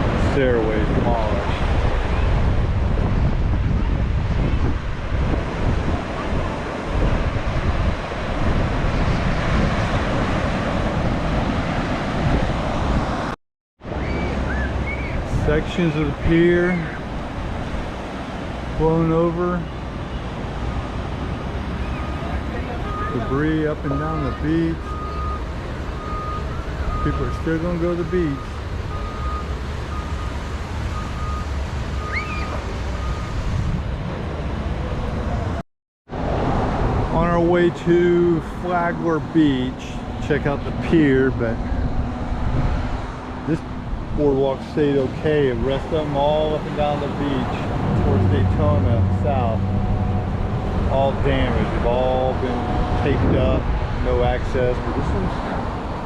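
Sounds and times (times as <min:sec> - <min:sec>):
wind buffeting microphone: 0:00.0 - 0:27.0, 0:29.5 - 0:56.0
rough surf: 0:00.0 - 0:56.0
rising and falling call: 0:14.0 - 0:15.3, 0:32.0 - 0:32.7
vehicle reversing alarm beeping: 0:21.8 - 0:33.5.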